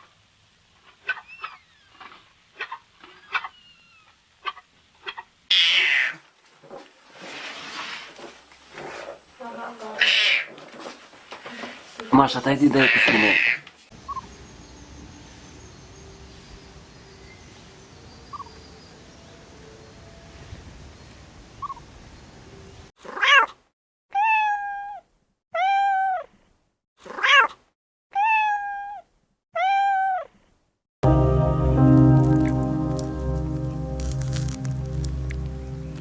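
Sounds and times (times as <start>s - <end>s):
cat meowing: 24.1s - 25.0s, 25.6s - 26.2s, 27.1s - 29.0s, 29.6s - 30.3s.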